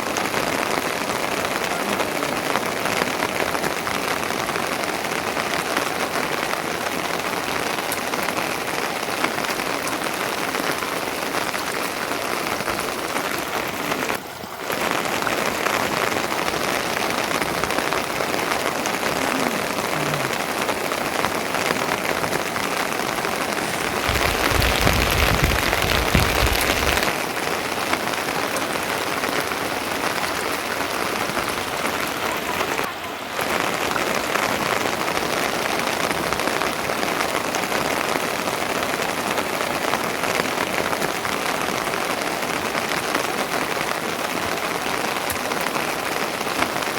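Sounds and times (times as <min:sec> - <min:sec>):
steady rain falling: 0:00.0 - 0:46.9
deep rushing: 0:23.0 - 0:27.1.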